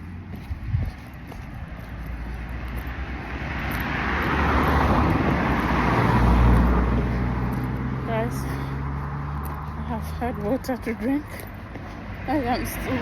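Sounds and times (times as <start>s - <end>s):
car driving past: 2.0s - 10.2s.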